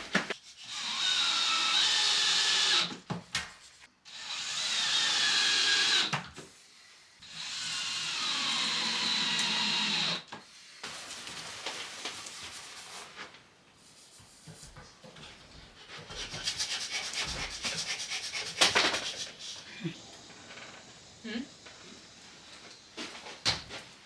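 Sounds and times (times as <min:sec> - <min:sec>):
power drill running: 0:04.1 - 0:06.1, 0:07.2 - 0:10.2.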